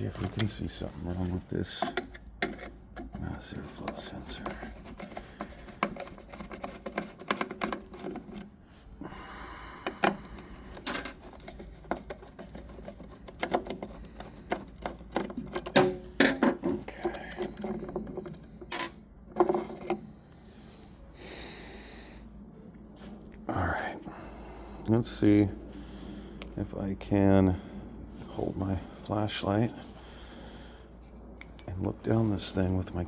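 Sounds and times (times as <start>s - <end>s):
plastic and metal parts clattering: 0.0s - 8.6s, 9.8s - 20.0s.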